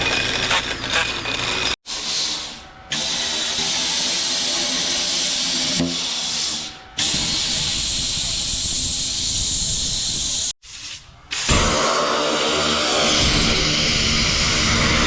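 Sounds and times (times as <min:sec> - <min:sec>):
welding arc hissing: 0:06.3 - 0:15.0.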